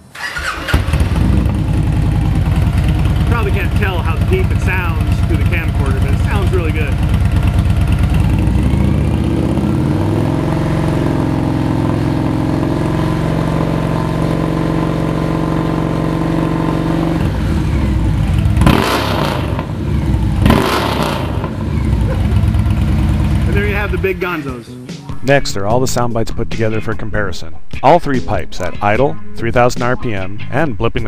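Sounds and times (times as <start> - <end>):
motorcycle engine revving: 0.2 - 24.6.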